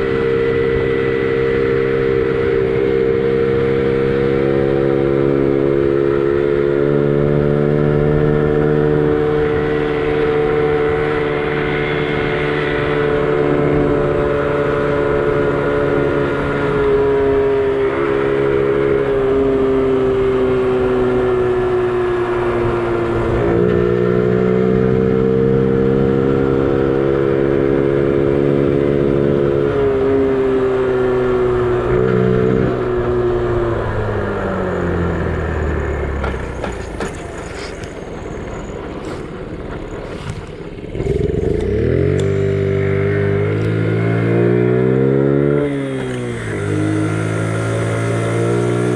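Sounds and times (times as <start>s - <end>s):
low wind rumble: 0.0s - 48.9s
small motorbike engine running: 31.8s - 48.9s.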